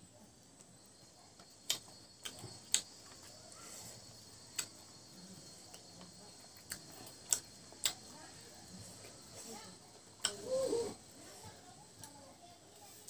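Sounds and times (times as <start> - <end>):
mouth clicks while chewing: 1.6 - 3.0, 4.5 - 4.8, 5.7 - 8.1, 10.2 - 10.4.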